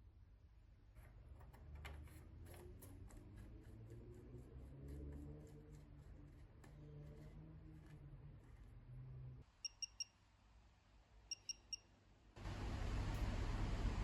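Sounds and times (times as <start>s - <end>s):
low steady hum: 12.4s - 14.0s.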